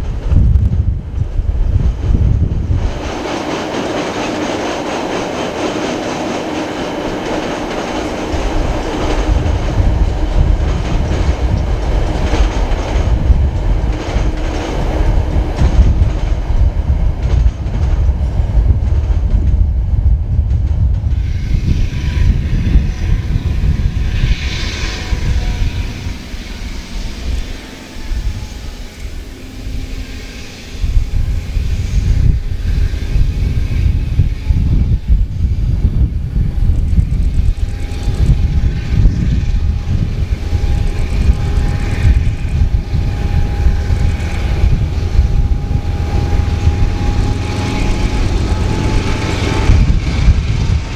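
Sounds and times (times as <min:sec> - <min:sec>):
freight train rumble: 0:00.0 - 0:50.9
wheels clicking over rail joints: 0:01.1 - 0:21.3.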